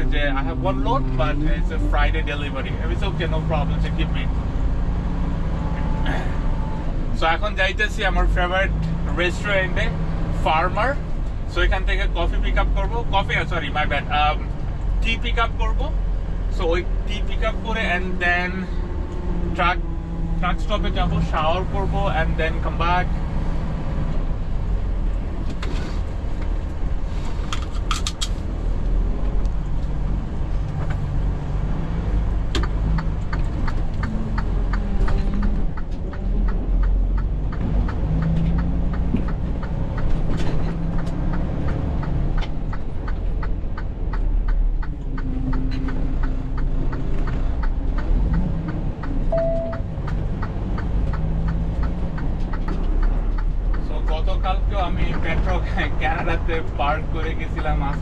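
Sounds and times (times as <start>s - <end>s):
truck engine and road noise: 0.0s - 58.0s
regular clicks: 32.5s - 55.5s.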